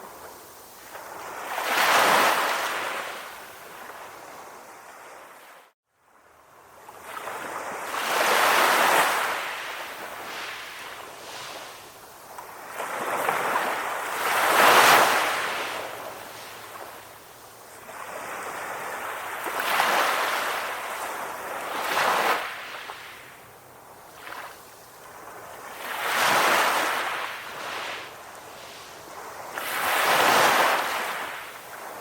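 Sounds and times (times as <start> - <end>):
ocean waves breaking: 24.1 - 32.0.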